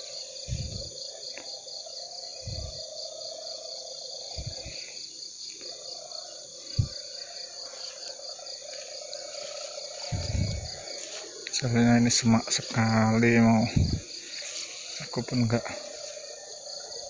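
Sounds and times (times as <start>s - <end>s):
crickets chirping: 0.0s - 17.0s
low thumps: 10.1s - 10.8s.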